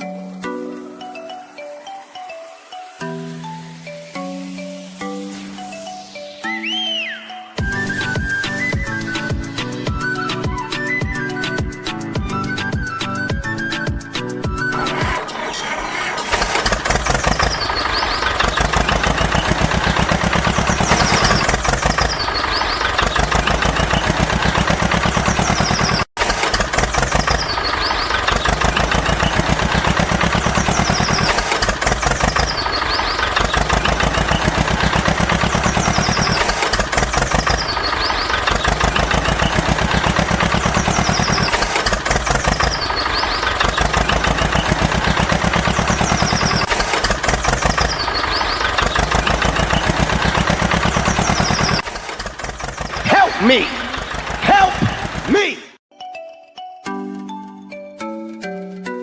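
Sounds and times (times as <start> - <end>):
tractor engine chugging: 7.6 - 55.8.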